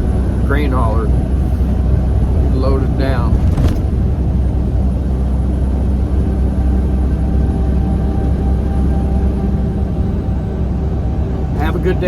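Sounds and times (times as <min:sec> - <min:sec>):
truck engine and road drone: 0:00.0 - 0:12.0.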